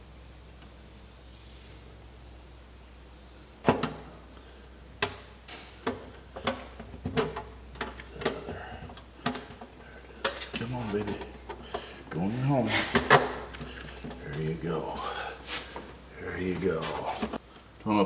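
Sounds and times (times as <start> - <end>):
metal gasket knocking and clanking: 3.6 - 4.2, 5.0 - 14.6.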